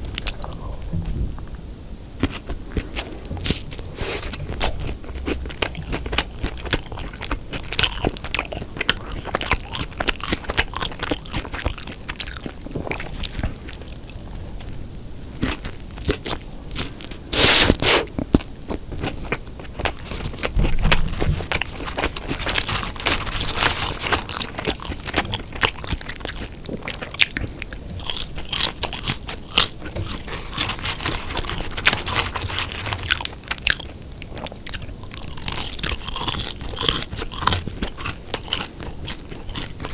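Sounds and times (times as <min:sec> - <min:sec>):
chewing burger with crunching: 0:00.0 - 0:01.5, 0:02.2 - 0:39.9
mouth clicks: 0:17.3 - 0:18.1.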